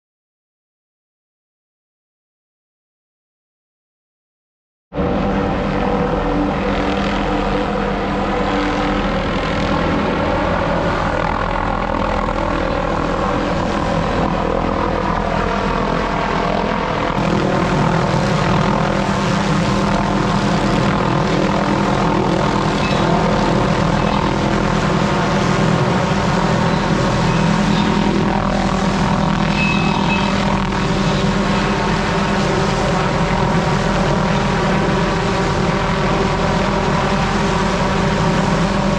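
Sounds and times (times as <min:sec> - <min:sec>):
small engine running: 0:17.0 - 0:38.9.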